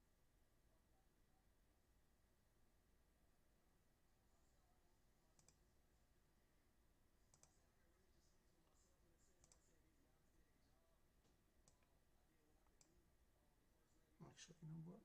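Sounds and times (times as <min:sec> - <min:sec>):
computer mouse clicks: 0:05.3 - 0:05.7, 0:07.3 - 0:07.6, 0:08.6 - 0:09.8, 0:11.2 - 0:11.9, 0:12.6 - 0:13.0.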